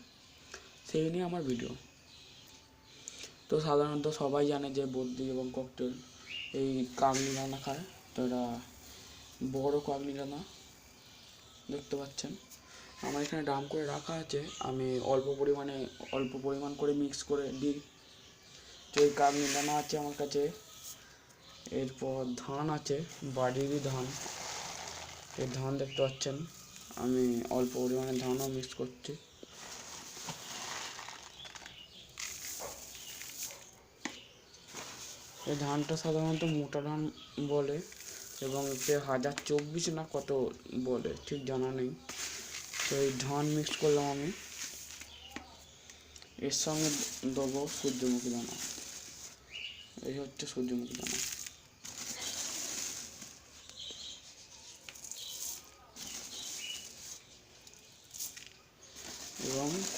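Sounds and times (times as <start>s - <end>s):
faint bird chirps: 0.0s - 59.9s
grains poured rustling: 6.8s - 10.0s, 18.8s - 21.1s, 23.0s - 28.8s, 29.4s - 33.6s, 34.6s - 36.6s, 37.2s - 39.9s, 42.1s - 45.8s, 46.5s - 49.9s, 50.7s - 54.2s, 54.9s - 59.9s.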